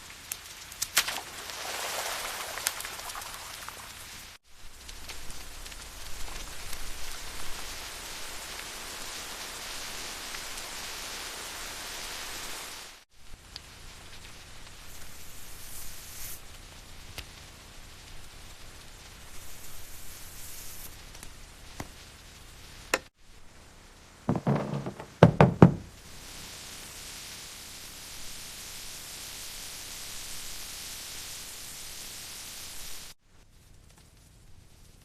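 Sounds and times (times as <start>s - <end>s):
rain hiss: 0.0s - 24.3s, 25.9s - 35.0s
loud knocks: 24.3s - 25.9s.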